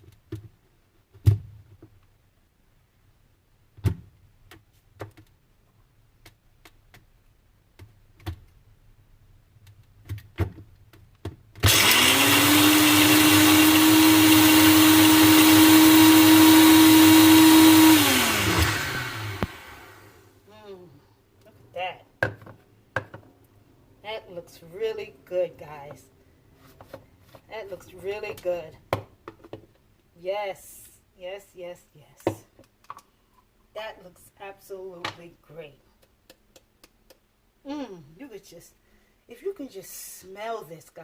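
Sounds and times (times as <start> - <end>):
blender running: 11.6 - 20.2.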